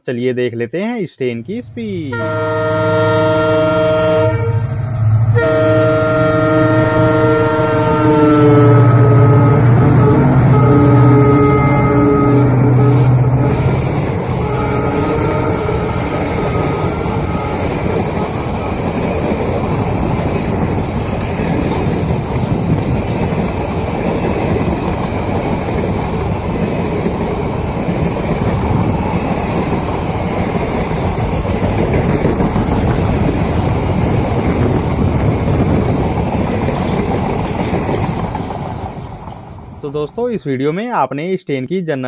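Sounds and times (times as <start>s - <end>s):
train wheels rolling on track: 1.6s - 40.2s.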